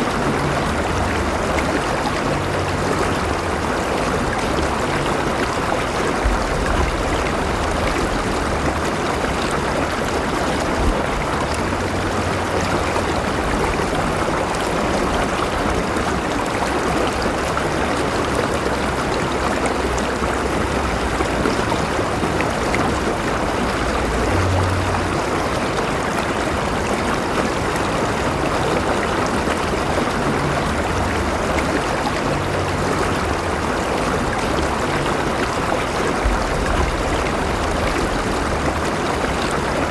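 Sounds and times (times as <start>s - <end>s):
faint low rumbles: 0.0s - 16.2s, 30.2s - 39.9s
river rushing over rocks: 0.0s - 39.9s.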